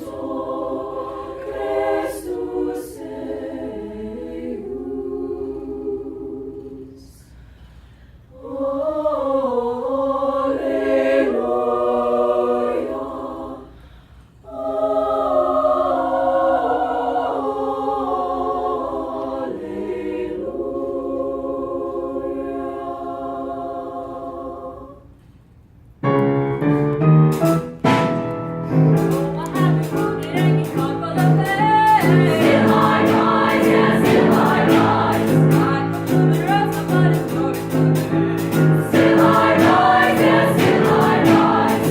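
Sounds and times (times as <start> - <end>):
choir singing: 0.0 - 7.3, 8.3 - 25.2, 28.0 - 41.9
sharp percussive strikes: 27.3 - 41.9.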